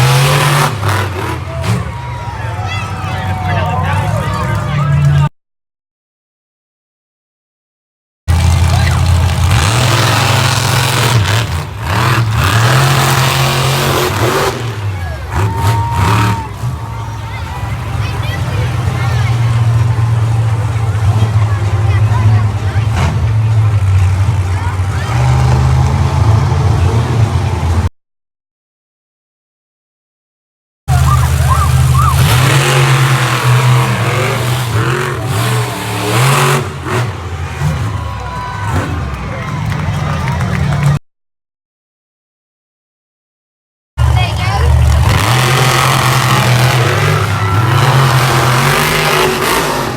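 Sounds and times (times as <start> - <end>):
truck engine revving: 0.0 - 5.3, 8.3 - 27.9, 30.9 - 41.0, 44.0 - 49.9
bursts of noise: 44.0 - 49.9.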